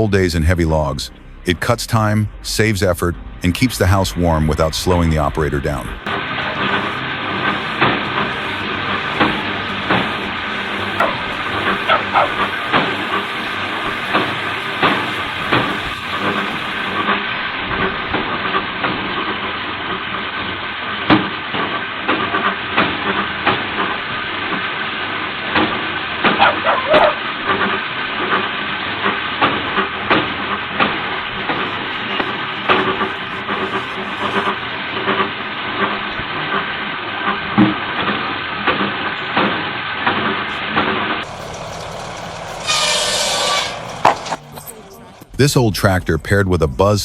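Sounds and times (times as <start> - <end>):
hissing machinery: 0.0 - 47.0.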